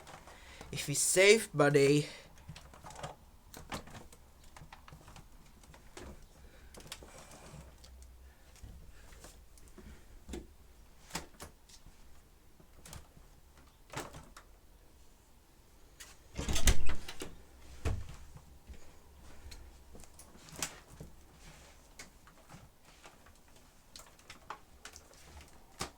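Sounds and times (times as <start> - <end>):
clicks and knocks of handling: 2.4 - 10.5, 21.8 - 25.9.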